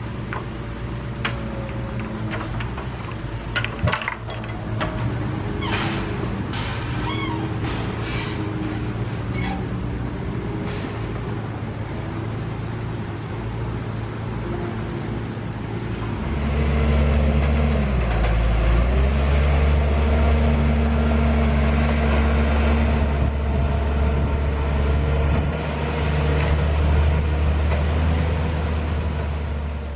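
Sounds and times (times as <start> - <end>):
tractor diesel engine running: 0.0 - 14.4, 15.1 - 29.9.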